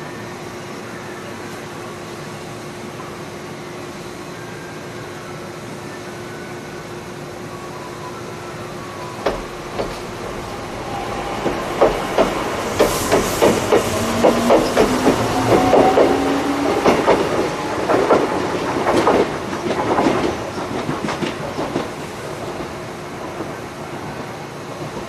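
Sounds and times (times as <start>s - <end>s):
electric train hum: 0.0s - 25.0s
wheels clacking over rail joints: 9.2s - 21.9s.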